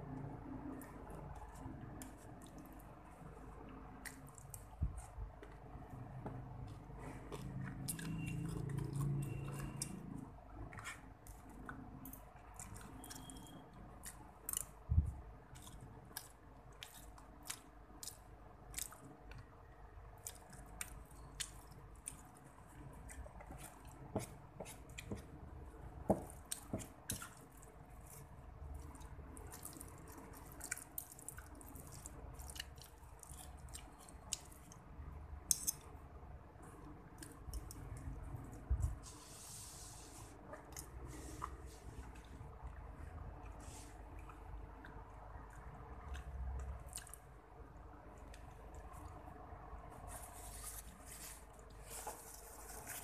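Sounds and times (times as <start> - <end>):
wet chewing and mouth clicks: 0.2 - 19.5, 20.2 - 25.2, 26.2 - 34.9, 40.5 - 47.4.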